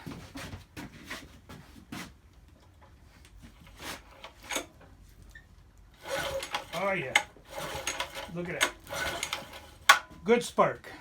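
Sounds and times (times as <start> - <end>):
recoil starter rope rasps: 3.6 - 4.7, 6.0 - 10.3.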